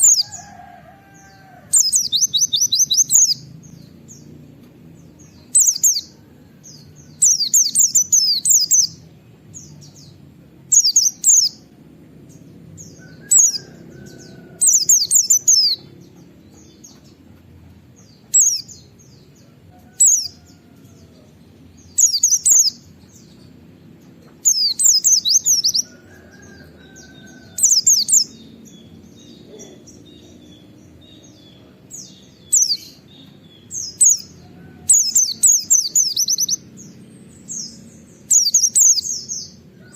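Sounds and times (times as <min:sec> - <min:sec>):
bird chirping rapidly: 0:00.0 - 0:00.5, 0:01.7 - 0:04.3, 0:05.2 - 0:06.1, 0:07.2 - 0:09.0, 0:09.6 - 0:11.8, 0:12.4 - 0:17.2, 0:18.0 - 0:19.4, 0:20.0 - 0:20.6, 0:21.8 - 0:23.5, 0:24.4 - 0:39.6.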